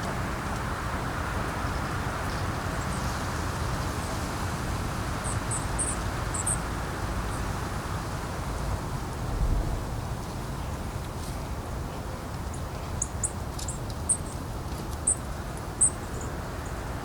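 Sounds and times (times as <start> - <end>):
wind on microphone: 1.9 - 11.8.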